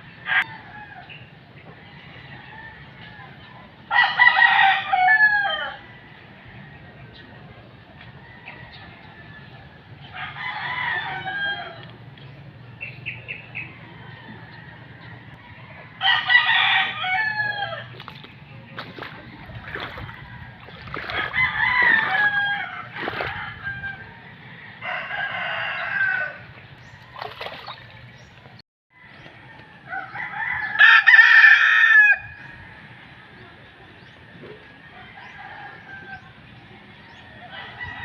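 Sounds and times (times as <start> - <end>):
rooster crowing: 3.9 - 6.0, 10.1 - 11.9, 13.8 - 18.0, 19.8 - 26.4, 29.0 - 32.9.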